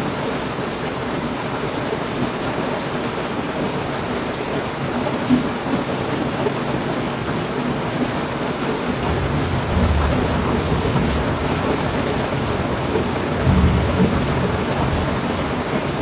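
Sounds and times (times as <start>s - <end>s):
heavy rain falling: 0.0s - 16.0s
low rumble: 9.0s - 16.0s.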